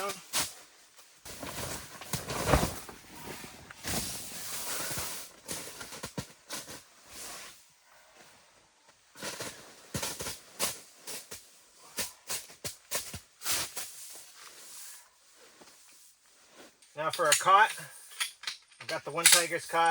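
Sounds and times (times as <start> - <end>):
carpet rustling and thumping: 1.3 - 6.8.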